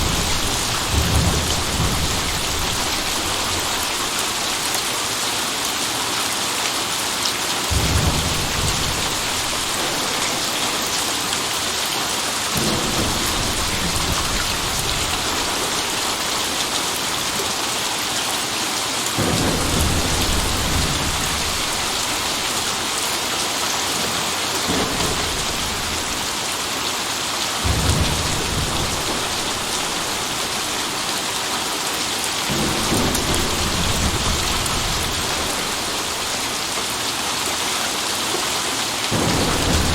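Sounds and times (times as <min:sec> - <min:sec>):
thunder rumbling: 0:00.0 - 0:04.7, 0:07.7 - 0:11.9, 0:12.5 - 0:16.8, 0:19.2 - 0:23.1, 0:24.7 - 0:26.5, 0:27.6 - 0:31.2, 0:32.5 - 0:37.0, 0:39.1 - 0:39.9
heavy rain hissing: 0:00.0 - 0:39.9.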